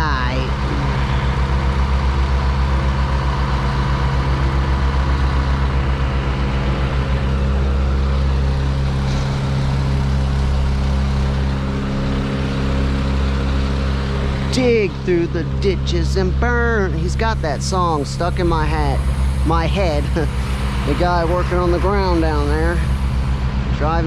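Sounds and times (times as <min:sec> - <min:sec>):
truck engine droning: 0:00.0 - 0:24.0.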